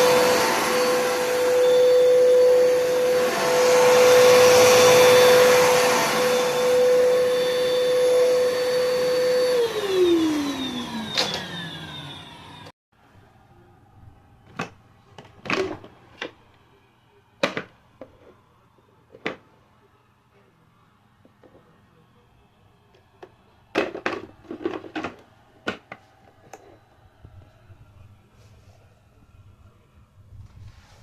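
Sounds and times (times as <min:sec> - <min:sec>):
vacuum cleaner motor whining: 0:00.0 - 0:12.7
vacuum motor spinning down: 0:00.0 - 0:12.7.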